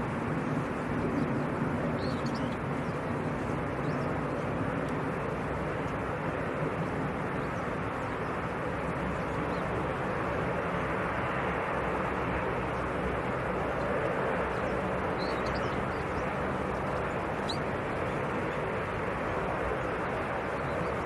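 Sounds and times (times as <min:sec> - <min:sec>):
aircraft engine noise: 0:00.0 - 0:21.0
faint chirp: 0:02.0 - 0:03.0, 0:14.5 - 0:16.4, 0:17.4 - 0:17.7.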